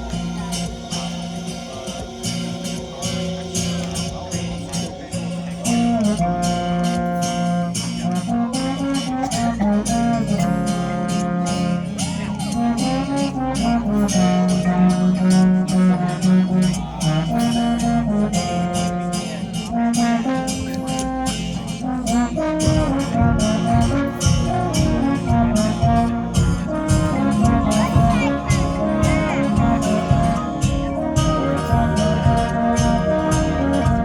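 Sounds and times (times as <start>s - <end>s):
percussion strikes: 0.0s - 9.6s, 19.3s - 34.0s
marching band brass chords: 0.0s - 34.0s
heavy low drum hits: 22.6s - 34.0s.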